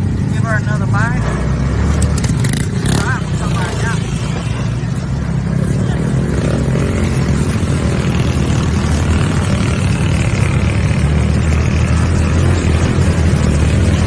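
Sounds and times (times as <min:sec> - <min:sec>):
off-road vehicle engine running: 0:00.0 - 0:14.0.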